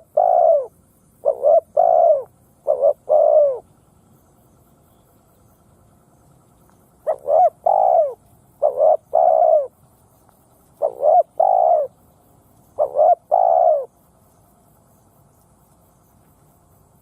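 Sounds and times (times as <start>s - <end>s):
dove cooing: 0.0s - 4.1s, 4.9s - 14.1s.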